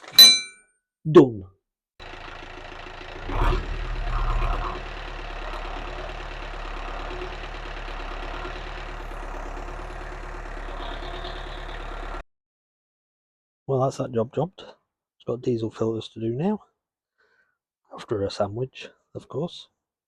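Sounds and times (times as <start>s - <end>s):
marine diesel engine idling: 2.0s - 12.2s.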